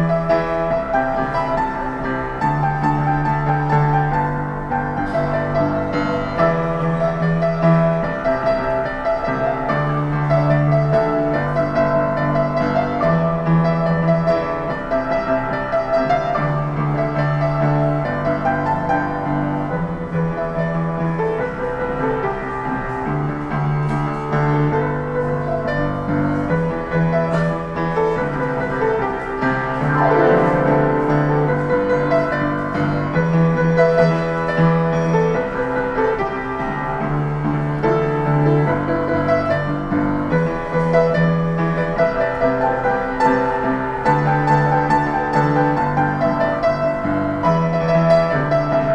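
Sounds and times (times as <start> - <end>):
piano playing chords and melody: 0.0 - 48.9.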